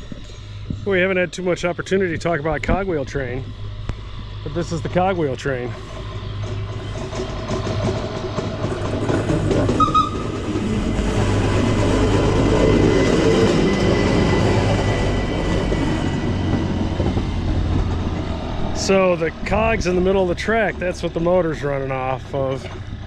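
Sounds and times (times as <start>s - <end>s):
train low hum: 0.0s - 23.0s
train wheels rumbling: 0.0s - 23.0s.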